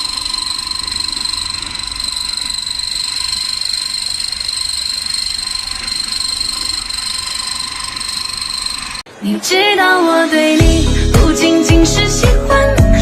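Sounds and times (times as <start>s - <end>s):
grinding machine motor whine: 0.0s - 9.1s.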